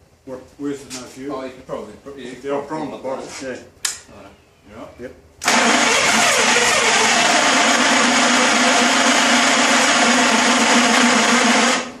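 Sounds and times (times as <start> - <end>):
starter cranking engine: 5.4 - 12.0.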